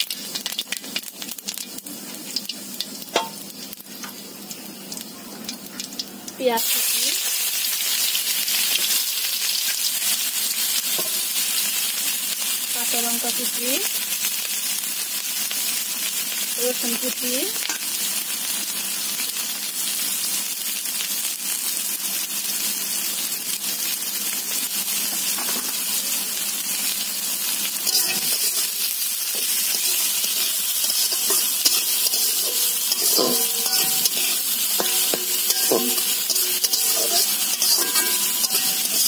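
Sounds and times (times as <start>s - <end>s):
vegetables sizzling in hot oil: 0.0s - 39.0s
spatula scraping and clinking on pan: 27.8s - 39.0s.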